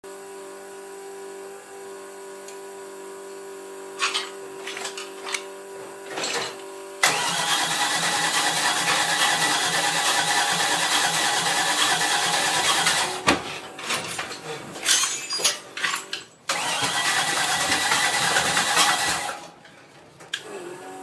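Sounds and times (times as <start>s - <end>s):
engine cranking: 7.0s - 13.2s, 16.5s - 19.4s.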